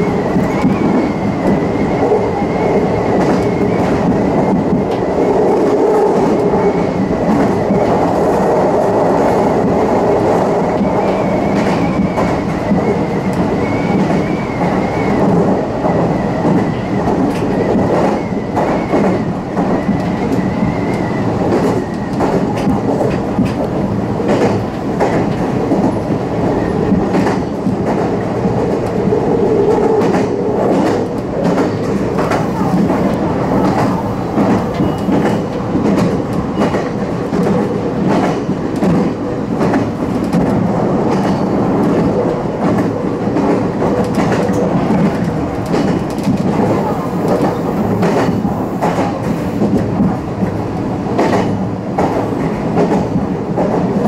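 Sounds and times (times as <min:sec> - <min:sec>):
train running noise: 0:00.0 - 0:54.0.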